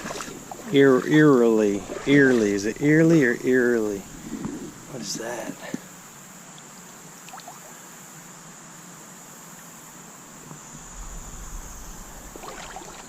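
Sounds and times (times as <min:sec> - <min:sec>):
insects droning: 0:00.0 - 0:13.0
low rumble: 0:10.6 - 0:13.0.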